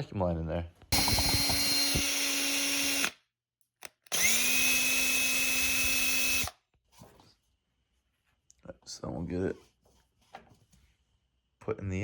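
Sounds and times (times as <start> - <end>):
power drill drilling plastic: 0.9 - 3.2, 3.8 - 6.5.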